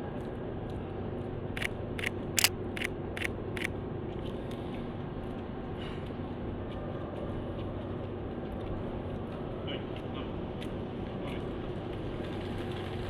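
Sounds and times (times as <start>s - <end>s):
low street hum: 0.0s - 13.0s
camera shutter clicks: 1.6s - 2.9s.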